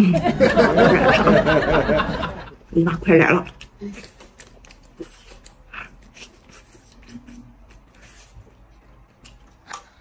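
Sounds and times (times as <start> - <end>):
faint chewing and biting: 3.4 - 10.0
small clicks and mouth noises: 3.4 - 10.0.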